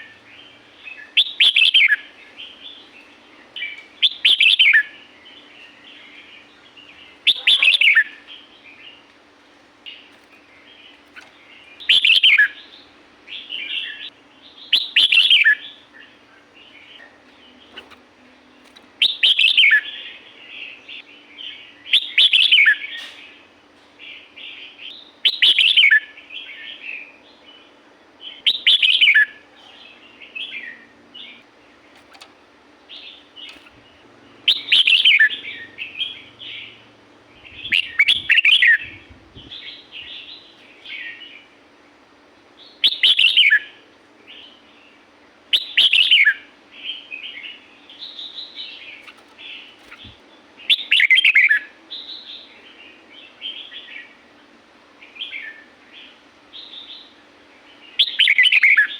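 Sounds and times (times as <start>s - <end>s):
bird singing short phrases: 0.0s - 9.0s, 9.9s - 23.2s, 32.9s - 41.5s, 42.6s - 54.1s, 55.1s - 58.9s
soft bird chattering: 6.0s - 8.5s.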